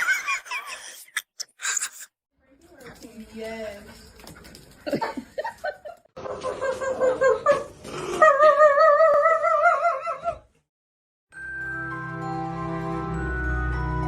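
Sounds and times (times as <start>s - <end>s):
soft music: 11.3s - 14.0s.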